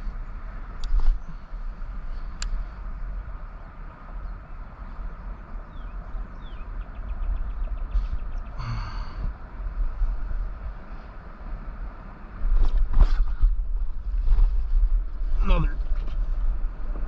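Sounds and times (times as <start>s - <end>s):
low outdoor rumble: 0.0s - 17.0s
bird chirps and trill: 5.2s - 8.6s.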